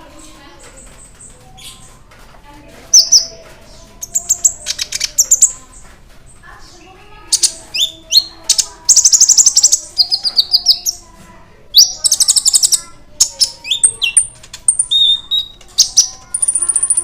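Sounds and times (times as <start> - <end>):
sunbird singing trills: 11.8 - 17.0.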